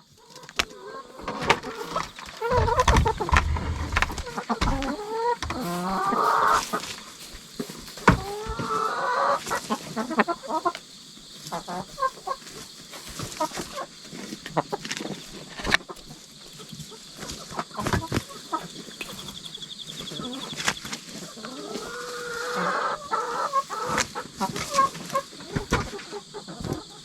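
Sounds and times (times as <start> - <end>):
hens clucking: 0.0 - 27.0
sharp clicks and knocks: 2.4 - 5.6.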